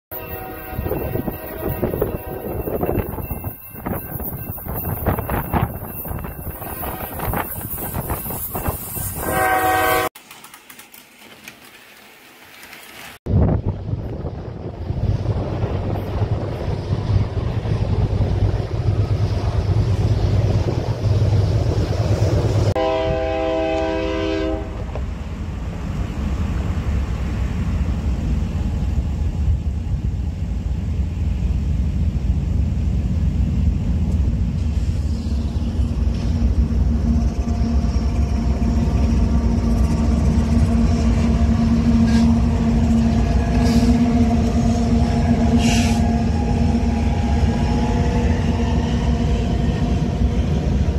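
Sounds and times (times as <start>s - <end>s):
train air horn blast: 0.1s - 2.9s, 6.7s - 7.5s, 9.2s - 10.1s, 22.8s - 25.0s, 41.5s - 46.2s
freight train rumble: 0.1s - 50.9s
locomotive engine hum: 0.2s - 50.9s
wind on microphone: 13.3s - 23.3s.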